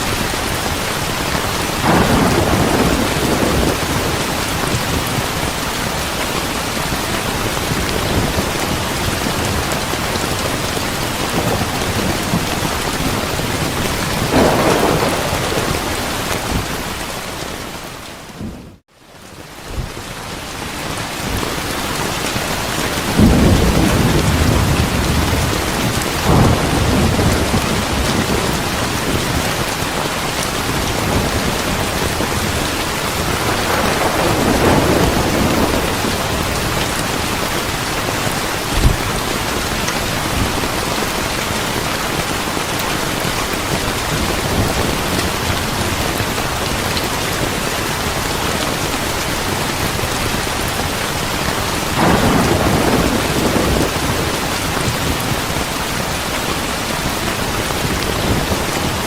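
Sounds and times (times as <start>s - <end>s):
thunder rumbling: 0.0s - 18.8s, 22.8s - 59.0s
heavy rain: 0.0s - 59.0s
sharp thunderclap: 1.8s - 5.6s, 7.6s - 17.2s, 23.1s - 30.0s, 30.6s - 37.6s, 38.7s - 40.7s, 52.0s - 55.4s.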